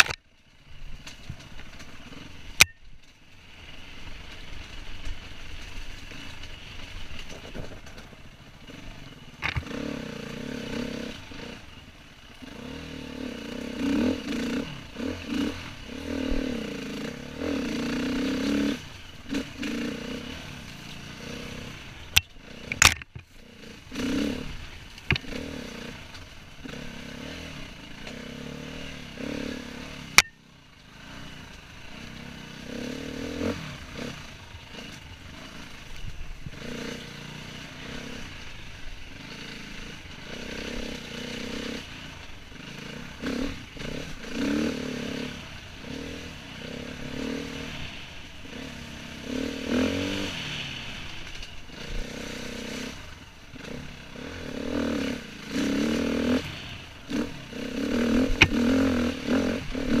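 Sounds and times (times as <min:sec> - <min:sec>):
dirt bike engine revving: 0:01.0 - 1:00.0
sharp click: 0:22.2 - 0:23.2, 0:30.2 - 0:30.4.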